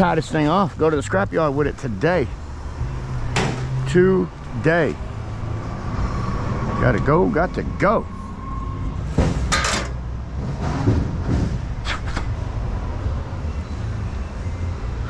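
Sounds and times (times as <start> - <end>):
scrap metal clanking: 3.3 - 4.0, 9.1 - 10.0.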